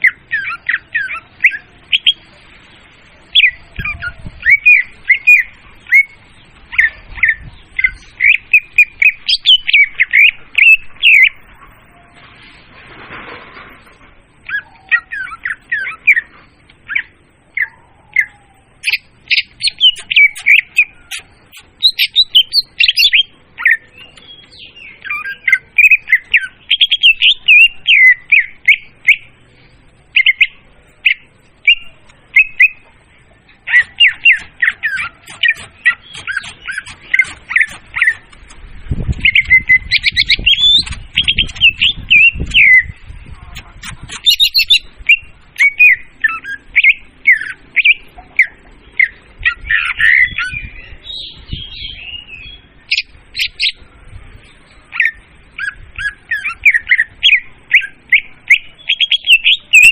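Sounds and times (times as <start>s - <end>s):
bird chirps and whistles: 16.9s - 29.3s, 33.7s - 38.3s, 39.0s - 43.0s, 43.6s - 53.8s, 54.9s - 59.9s.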